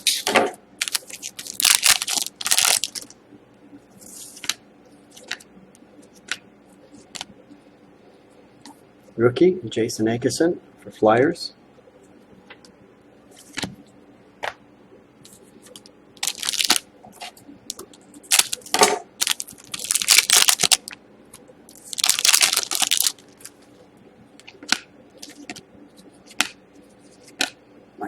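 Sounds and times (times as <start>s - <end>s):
plastic wrappers crinkling: 0.0s - 3.2s, 15.3s - 23.8s, 24.4s - 25.6s.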